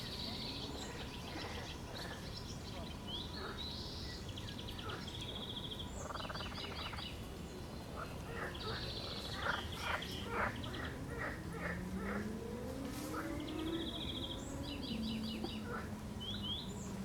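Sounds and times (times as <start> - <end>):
birds singing trills: 0.0 - 12.3, 13.2 - 17.0
low rising tone: 10.9 - 15.7.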